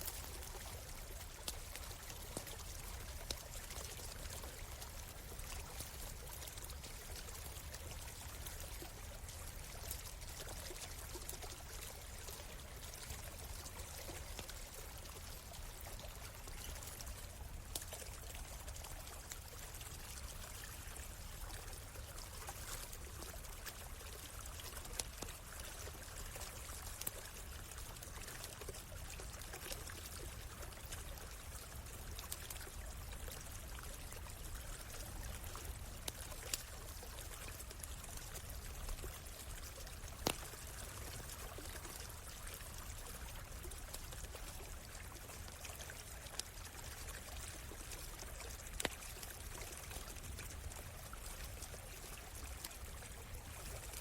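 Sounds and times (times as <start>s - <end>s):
stream water flowing: 0.0s - 54.0s
campfire pops and crackles: 32.2s - 42.0s, 48.2s - 49.4s.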